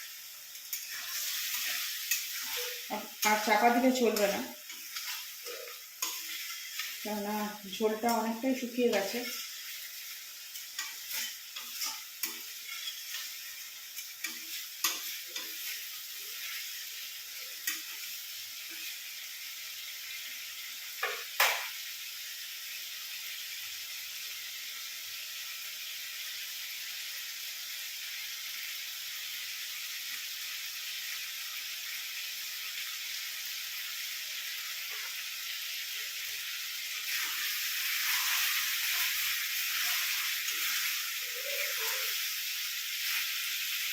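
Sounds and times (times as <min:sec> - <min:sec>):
chicken sizzling in a pan: 0:00.0 - 0:43.9
spatula scraping and knocking pan: 0:10.5 - 0:15.8.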